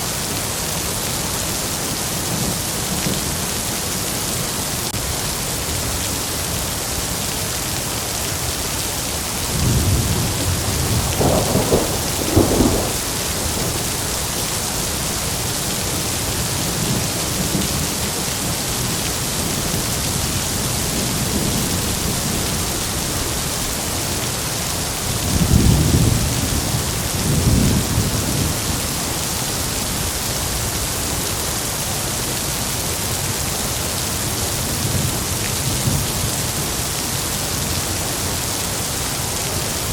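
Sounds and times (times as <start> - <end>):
heavy rain hissing: 0.0 - 39.9
thunder rumbling: 9.5 - 15.6.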